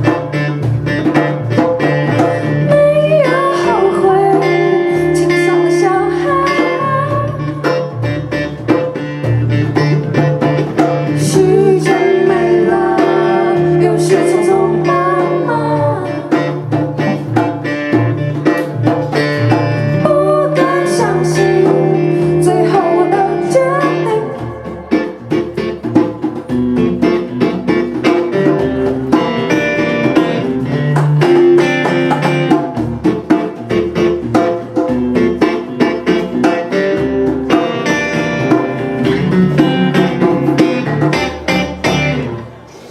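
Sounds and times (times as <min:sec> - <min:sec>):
strummed guitars: 0:00.0 - 0:42.9
wavering melody line: 0:11.1 - 0:25.8.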